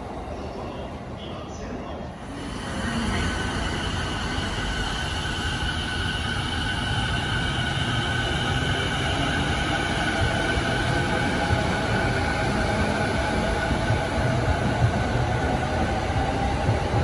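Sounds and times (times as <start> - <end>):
train wheels rumbling on rails: 2.2 - 17.0.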